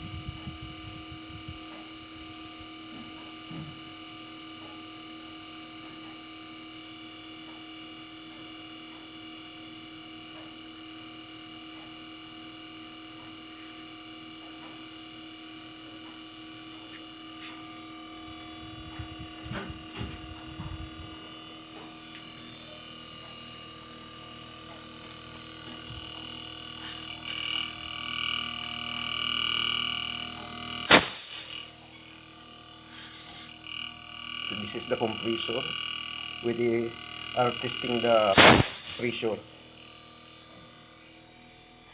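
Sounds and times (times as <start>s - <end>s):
air conditioner hum with whine: 0.0s - 41.9s
sharp click: 30.9s - 31.7s, 38.3s - 39.1s.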